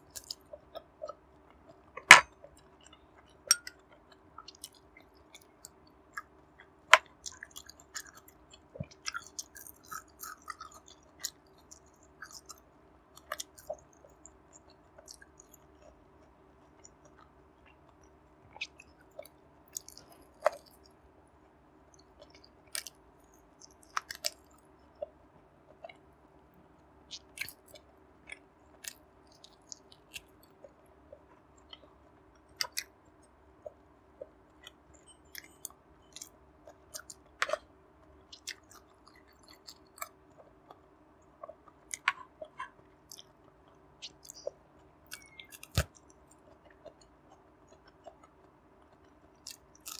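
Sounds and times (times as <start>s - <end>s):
person chewing: 0.0s - 12.6s, 13.2s - 16.0s, 16.7s - 20.9s, 22.0s - 23.0s, 23.6s - 25.1s, 27.1s - 32.9s, 33.6s - 49.9s
wet mouth clicks: 18.5s - 20.9s, 32.6s - 32.9s, 38.3s - 40.8s, 41.4s - 43.4s, 44.0s - 49.9s.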